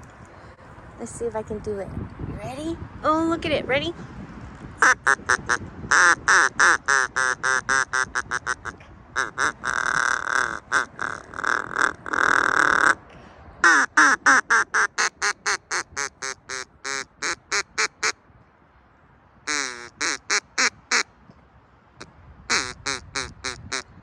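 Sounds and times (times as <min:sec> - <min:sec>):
duck call quacks: 0:04.8 - 0:13.0, 0:13.6 - 0:18.2, 0:19.5 - 0:21.1, 0:22.5 - 0:23.9.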